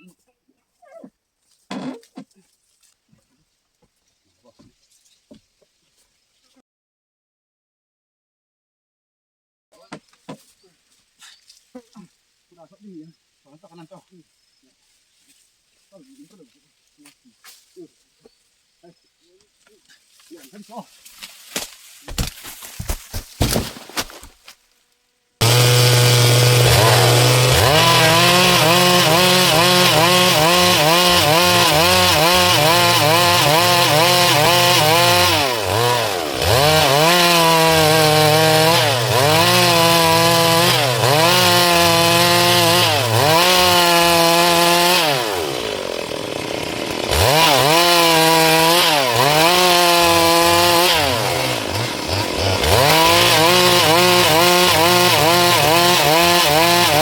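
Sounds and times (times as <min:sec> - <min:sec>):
chainsaw cutting log: 0:21.2 - 0:57.0.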